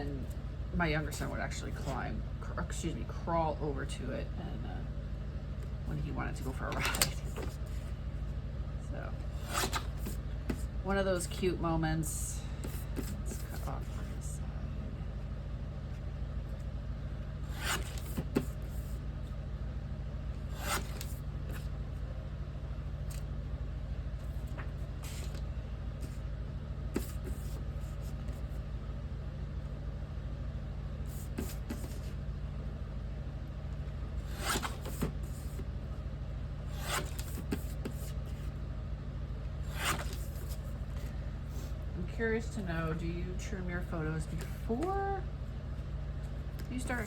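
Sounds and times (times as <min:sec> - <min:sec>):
low hum: 0:00.0 - 0:47.0
photo trimmer slicing paper: 0:17.5 - 0:18.4, 0:20.5 - 0:21.1.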